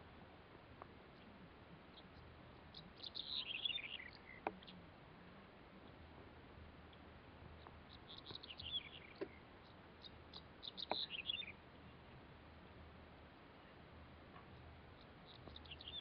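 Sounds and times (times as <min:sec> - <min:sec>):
faint steady hiss: 0:00.0 - 0:16.0
small songbird chirping: 0:01.1 - 0:04.8, 0:06.8 - 0:12.1, 0:14.4 - 0:16.0.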